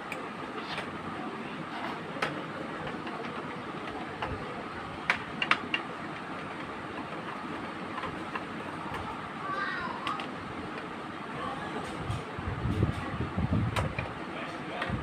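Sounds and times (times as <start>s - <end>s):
plastic parts clicking and tapping: 2.2s - 4.4s, 5.0s - 9.1s, 10.0s - 10.9s.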